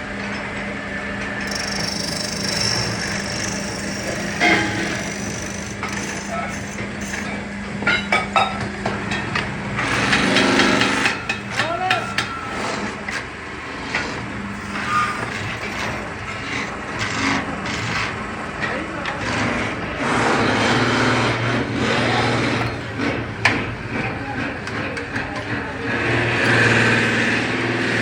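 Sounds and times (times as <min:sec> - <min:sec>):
steady machine hum: 0:00.0 - 0:28.0
rush of machine noise: 0:01.2 - 0:07.9
sharp metal knocks and clanks: 0:01.5 - 0:06.4, 0:07.8 - 0:12.4.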